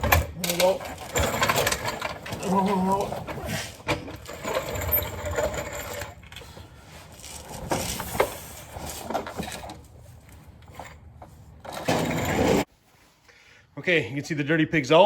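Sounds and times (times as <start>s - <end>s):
metal knocks and clanks: 0.0s - 6.2s
rattly mechanical noise: 0.0s - 6.6s.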